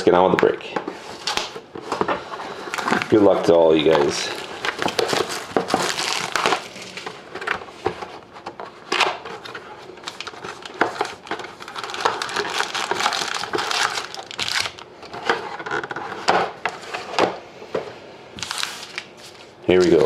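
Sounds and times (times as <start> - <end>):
plastic and cardboard packaging crinkling: 1.0 - 17.1, 18.4 - 20.0.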